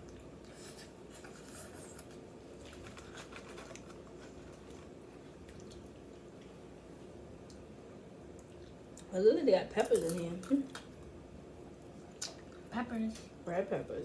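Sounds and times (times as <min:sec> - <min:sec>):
low steady hum: 0:00.0 - 0:14.0
people eating: 0:09.7 - 0:11.0.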